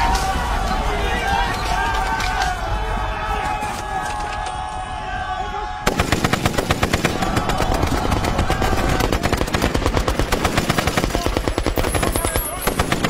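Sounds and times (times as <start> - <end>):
machine gun firing: 5.9 - 13.0.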